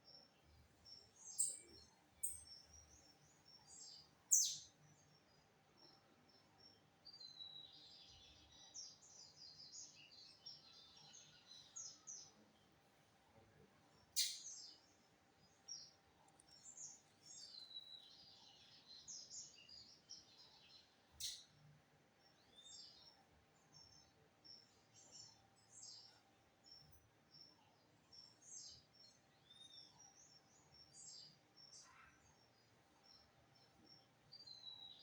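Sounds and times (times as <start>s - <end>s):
bird singing rapid high chirps: 1.3s - 2.8s.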